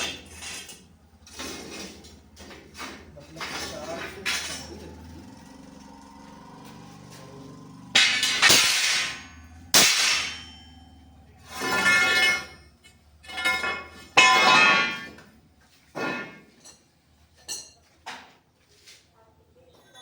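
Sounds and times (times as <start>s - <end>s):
steel pieces clanging and ringing: 7.9s - 15.3s.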